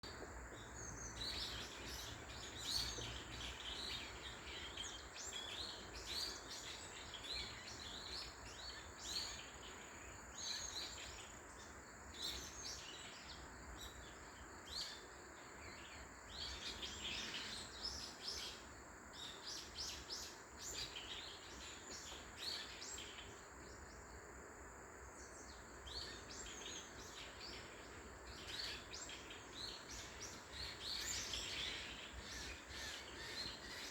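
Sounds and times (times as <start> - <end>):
faint background hiss: 0.0 - 33.9
birds chirping and singing: 28.3 - 33.9.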